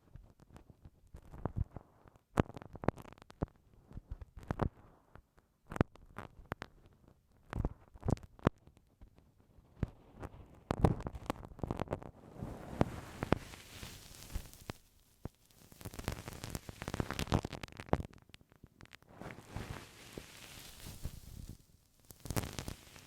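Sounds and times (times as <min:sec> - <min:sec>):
ear pick scraping and tapping: 0:10.1 - 0:23.0.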